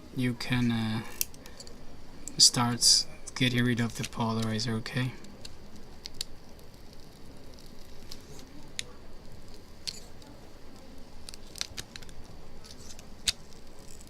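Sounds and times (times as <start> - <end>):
plastic film clicks and crackles: 3.4 - 14.0.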